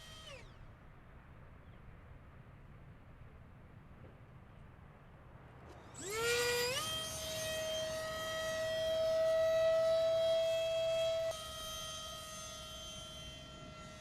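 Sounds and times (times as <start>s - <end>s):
electric ducted fan whine: 0.0s - 1.2s, 5.5s - 14.0s.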